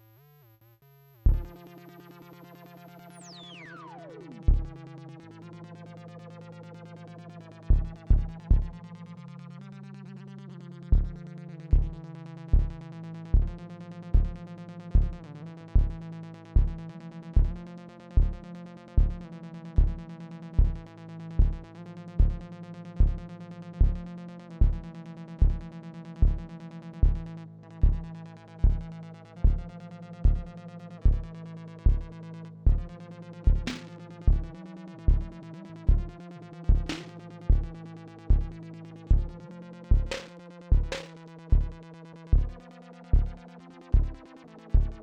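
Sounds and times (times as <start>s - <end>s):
kick drum: 1.3s - 1.6s, 4.5s - 4.7s, 7.7s - 8.8s, 10.9s - 12.8s, 13.4s - 13.6s, 14.2s - 14.4s, 15.0s - 15.2s, 15.8s - 16.0s, 16.6s - 16.8s, 17.4s - 17.6s, 18.2s - 18.4s, 19.0s - 19.2s, 19.8s - 20.0s, 20.6s - 20.8s, 21.4s - 21.6s, 22.2s - 22.4s, 23.0s - 23.2s, 23.8s - 24.0s, 24.6s - 24.8s, 25.4s - 25.6s, 26.2s - 31.3s, 31.9s - 32.1s, 32.7s - 32.9s, 33.5s - 34.5s, 35.1s - 36.1s, 36.7s - 37.7s, 38.3s - 43.4s, 44.0s - 44.2s, 44.8s - 45.0s.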